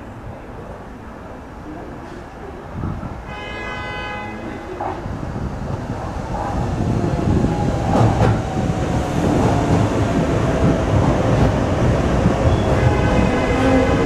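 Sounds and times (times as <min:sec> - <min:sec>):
train wheels rumbling on rails: 0:04.6 - 0:14.0.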